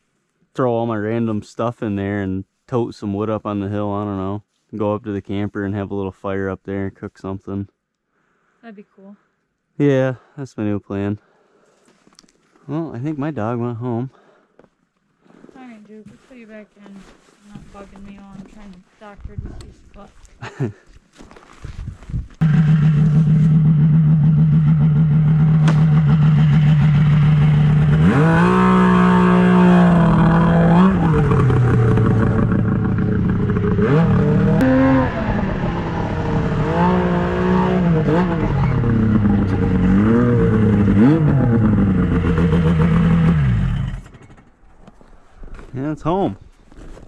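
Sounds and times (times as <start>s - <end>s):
snowmobile engine revving: 22.4s - 44.5s.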